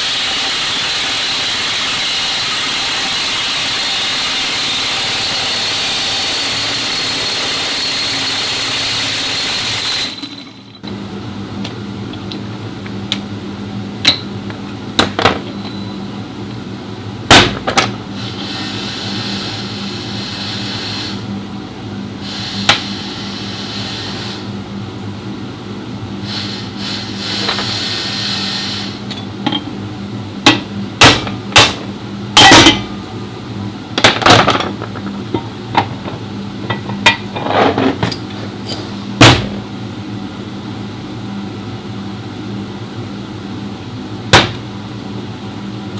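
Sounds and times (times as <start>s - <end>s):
hiss: 18.2s - 21.3s, 22.2s - 24.6s, 26.2s - 29.0s
hammer striking metal: 30.5s - 33.0s, 44.3s - 44.6s
tools clanking: 34.0s - 39.6s.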